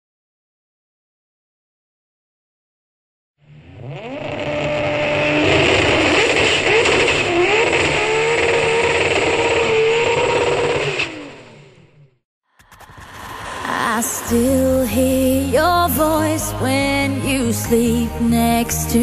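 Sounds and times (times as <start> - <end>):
car engine revving: 3.4 - 16.4.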